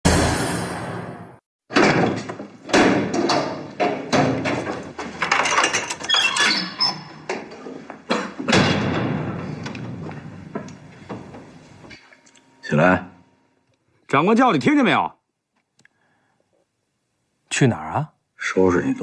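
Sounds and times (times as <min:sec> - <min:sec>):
loud knocks and clanks: 0:01.7 - 0:06.0, 0:07.3 - 0:11.5.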